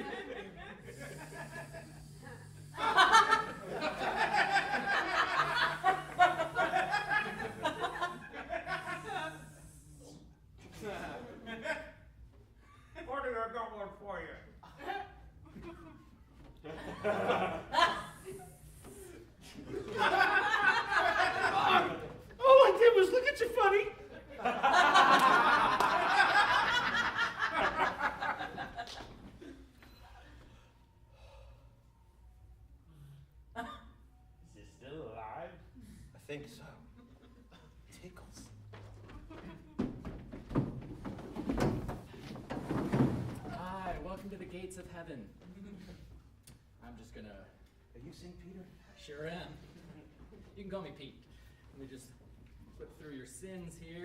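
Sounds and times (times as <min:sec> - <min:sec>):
audience laughing: 0:00.0 - 0:09.8, 0:16.7 - 0:22.6, 0:24.0 - 0:29.7.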